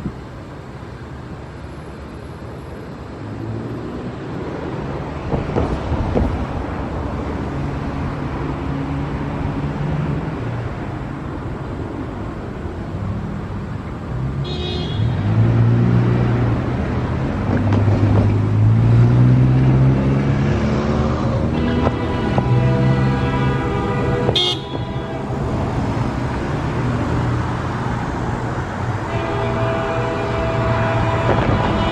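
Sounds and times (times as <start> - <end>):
diesel locomotive engines running: 21.4 - 31.9
train horn: 21.6 - 25.8, 29.0 - 31.9.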